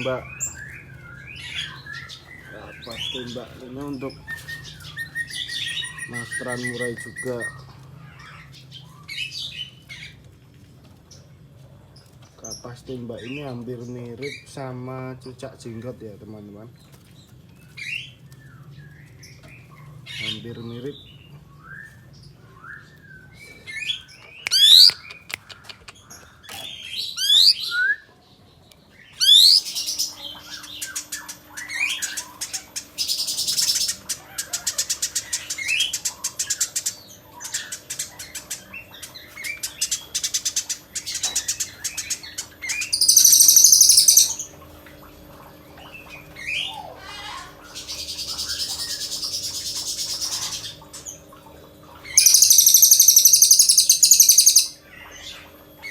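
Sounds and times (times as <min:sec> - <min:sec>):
songbird singing: 0:00.0 - 0:10.2, 0:17.2 - 0:51.3, 0:51.9 - 0:55.9
harsh buzzy bird rattles: 0:30.7 - 0:44.4, 0:52.2 - 0:54.7.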